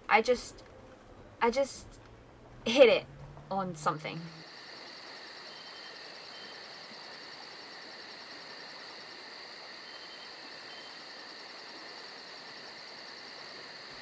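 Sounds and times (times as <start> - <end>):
insects chirping: 3.3 - 14.0.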